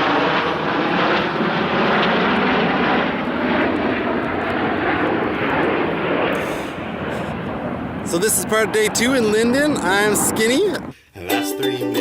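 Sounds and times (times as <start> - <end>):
jet aircraft engine rush: 0.0 - 11.0.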